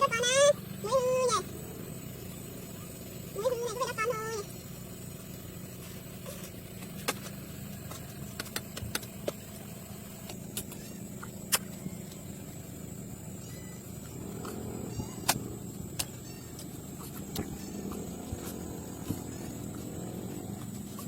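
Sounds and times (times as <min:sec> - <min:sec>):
low motor hum: 0:00.0 - 0:21.0
sharp clicks and knocks: 0:06.8 - 0:09.6.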